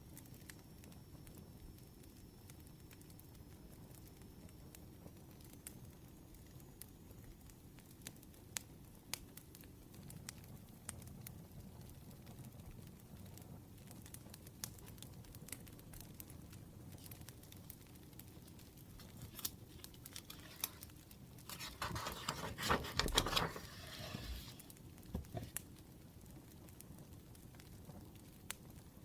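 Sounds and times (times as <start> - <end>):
wood fire crackling: 0.0 - 29.0
rustling burst: 21.4 - 25.6.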